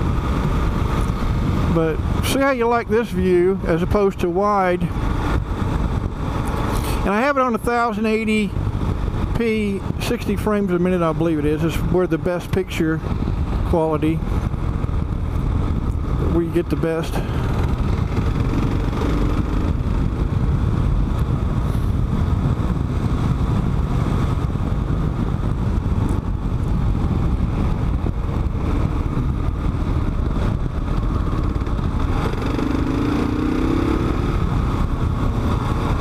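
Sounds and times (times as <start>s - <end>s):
wind rumble on microphone: 0.0s - 36.0s
motorcycle engine cruising: 3.6s - 7.3s, 11.0s - 36.0s.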